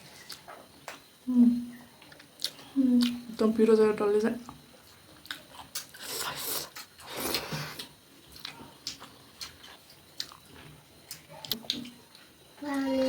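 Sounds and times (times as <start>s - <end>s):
chewing and biting food: 6.8s - 11.9s.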